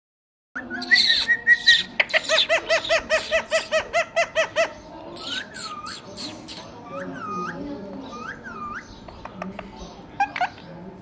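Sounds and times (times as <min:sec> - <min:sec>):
parrot screeching calls: 0:00.7 - 0:09.0.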